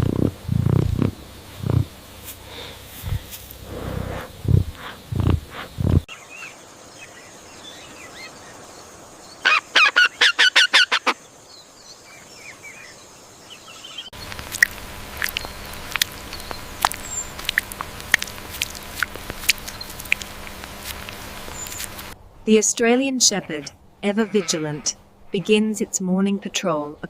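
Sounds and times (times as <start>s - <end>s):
faint chirping: 21.0s - 22.1s
poultry honking calls: 23.2s - 25.8s.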